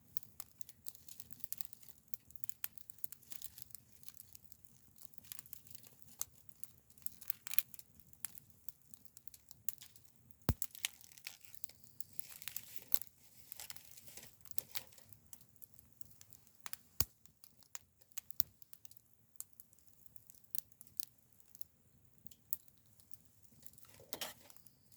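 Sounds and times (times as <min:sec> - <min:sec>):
wood fire crackling: 0:00.0 - 0:24.9
sharp pops and snaps: 0:09.0 - 0:13.1, 0:13.7 - 0:21.7.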